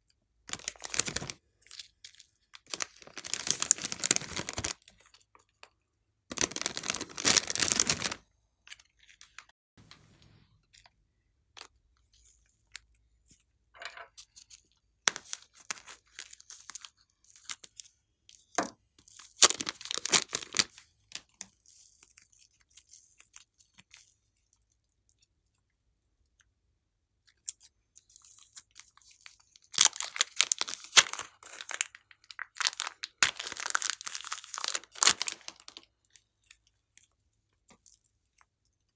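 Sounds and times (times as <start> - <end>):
slime crackling and popping: 0.5 - 1.4, 2.6 - 4.8, 6.3 - 8.2, 19.4 - 20.7, 29.8 - 35.8.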